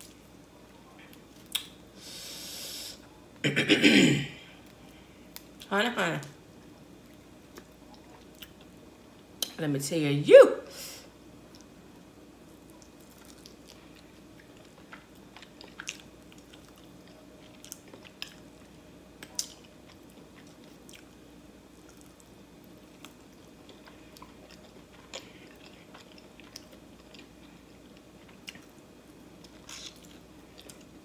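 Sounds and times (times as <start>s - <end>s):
faint chewing: 12.6s - 21.2s, 21.8s - 28.8s, 29.4s - 31.0s.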